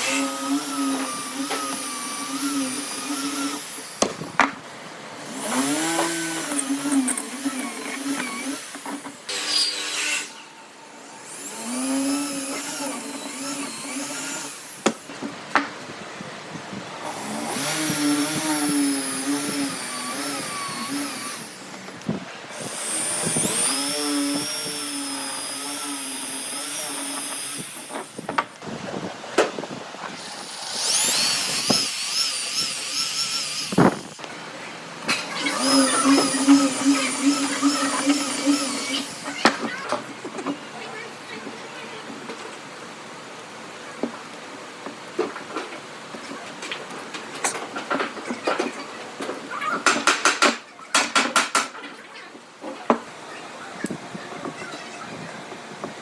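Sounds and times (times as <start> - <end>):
power tool motor cutting wood: 0.0 - 4.5, 5.2 - 15.1, 17.0 - 28.6, 30.0 - 34.3, 35.1 - 40.0.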